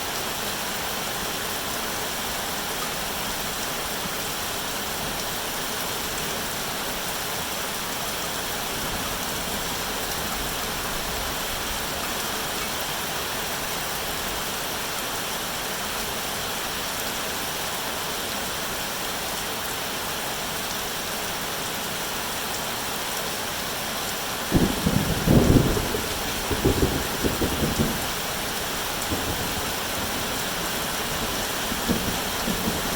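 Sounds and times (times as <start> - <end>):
steady rain falling: 0.0 - 32.9
low rumble of thunder: 24.5 - 32.9.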